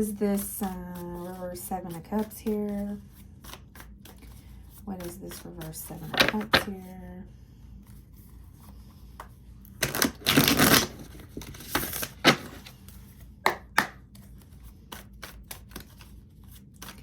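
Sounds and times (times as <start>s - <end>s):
cards rustling: 7.8s - 17.0s.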